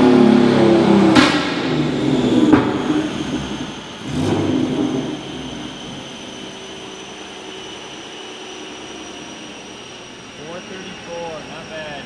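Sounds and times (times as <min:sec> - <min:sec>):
engine backfire crack: 0:00.0 - 0:06.3
car engine on a dyno: 0:00.0 - 0:12.0
thin high whine: 0:01.8 - 0:12.0.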